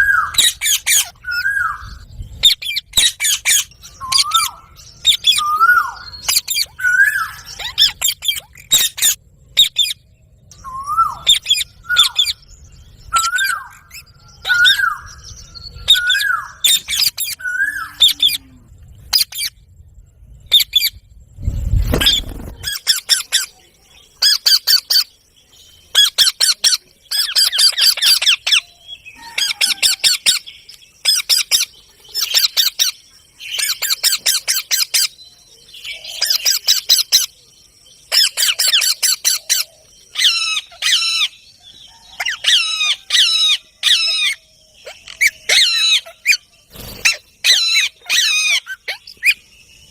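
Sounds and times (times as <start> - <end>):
parrot chirps and squawks: 0.0 - 1.8, 2.4 - 10.0, 29.2 - 30.4, 38.1 - 41.3, 42.2 - 46.4, 47.0 - 49.4.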